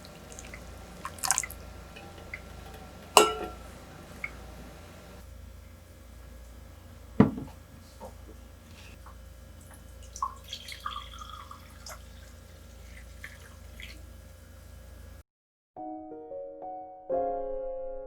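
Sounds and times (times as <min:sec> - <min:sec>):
piano music: 0:00.0 - 0:05.2, 0:15.8 - 0:18.0
water dripping with clinks: 0:00.0 - 0:05.2, 0:09.7 - 0:12.4
low steady hum: 0:00.0 - 0:15.2.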